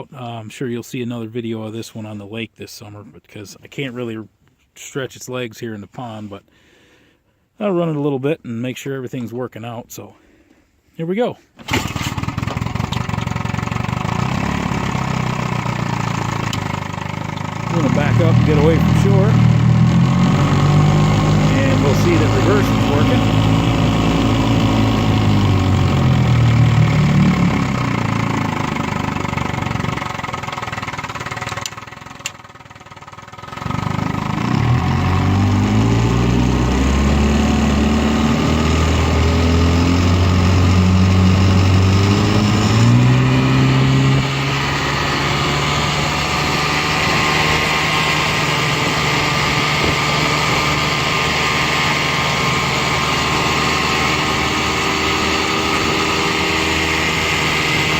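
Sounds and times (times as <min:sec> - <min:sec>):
two-stroke outboard motor running: 0:11.6 - 0:57.9.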